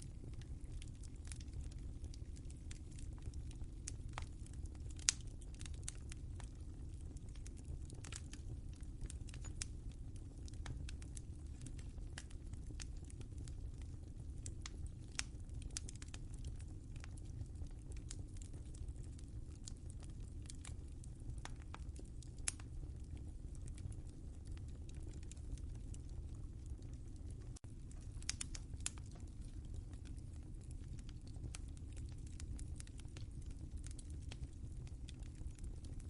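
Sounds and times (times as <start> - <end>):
fire crackling and popping: 0.0 - 36.0
low rumble of flames: 0.0 - 36.0.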